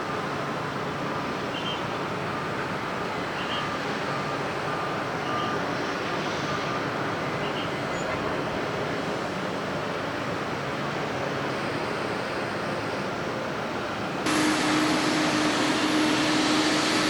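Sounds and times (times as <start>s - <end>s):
jet engines rushing: 14.2s - 17.0s.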